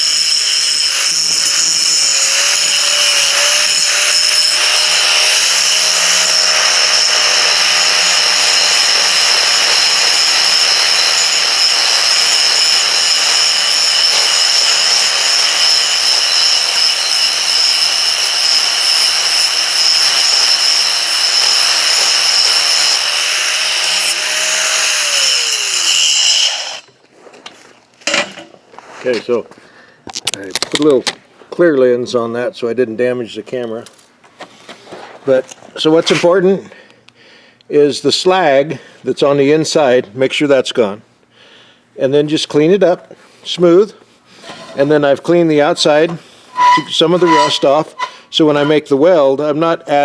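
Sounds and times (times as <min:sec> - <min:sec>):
grinder winding down: 0:00.0 - 0:26.8, 0:46.5 - 0:48.8
grinder whining on steel: 0:00.0 - 0:26.9, 0:44.4 - 0:49.0.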